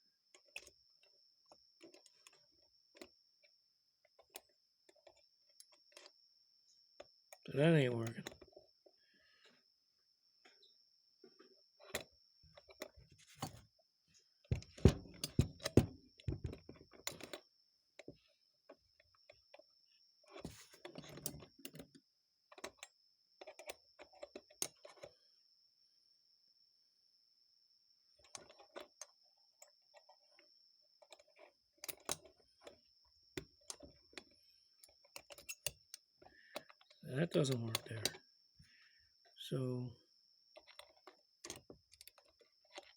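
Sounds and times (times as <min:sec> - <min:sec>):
faint high-pitched whine: 0:24.6 - 0:42.9
small metal parts clicking: 0:33.7 - 0:38.2.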